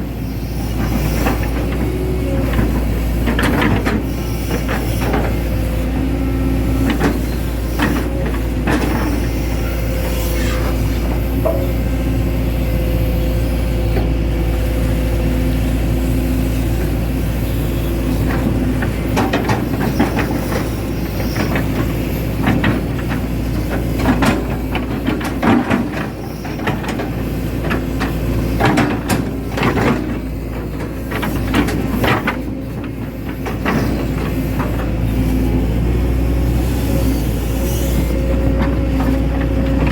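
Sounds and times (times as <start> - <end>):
excavator diesel engine running: 0.0 - 39.9
machine clanks and knocks: 18.3 - 20.7, 21.4 - 35.0, 38.5 - 39.9.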